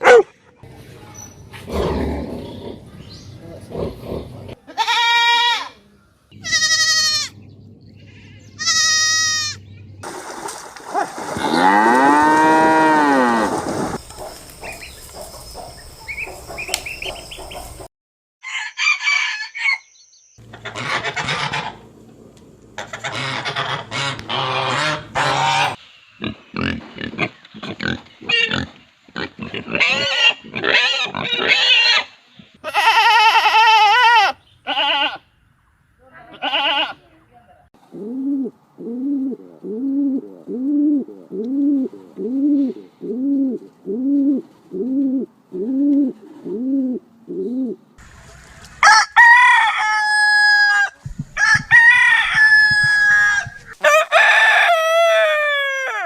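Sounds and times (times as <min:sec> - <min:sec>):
cow mooing: 0:11.4 - 0:13.5.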